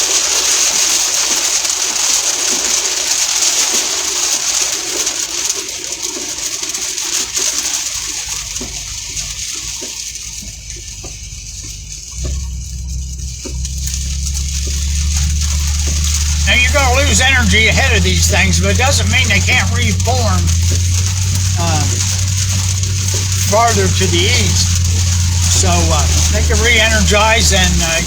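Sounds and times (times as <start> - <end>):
rain hissing on vehicle: 0.0 - 28.0
raindrops tapping on roof and glass: 0.0 - 28.0
low rumble: 7.8 - 28.0.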